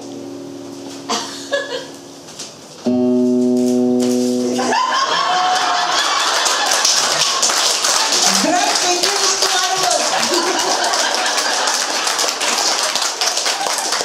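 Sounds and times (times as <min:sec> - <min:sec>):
final chord held on instrument: 0:00.0 - 0:02.2
audience shouting: 0:04.7 - 0:07.4, 0:08.0 - 0:11.6
audience applause: 0:04.7 - 0:14.0.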